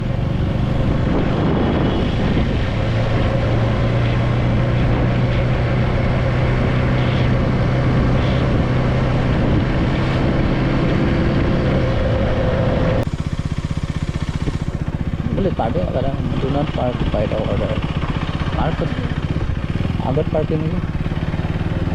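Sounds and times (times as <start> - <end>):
wind noise on microphone: 0.0 - 13.1
motorcycle engine cruising: 0.0 - 21.9.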